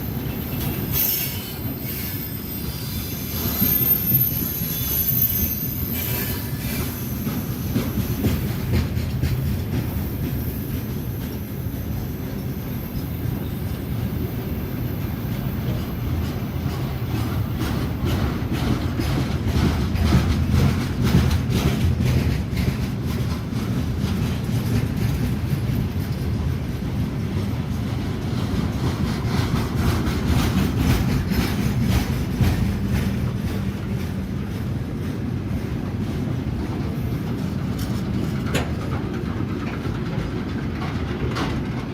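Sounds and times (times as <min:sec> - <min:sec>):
train wheels rumbling on rails: 0:00.0 - 0:41.9
high wheel squeal: 0:00.1 - 0:08.6
wheels clicking over rail joints: 0:03.2 - 0:41.9.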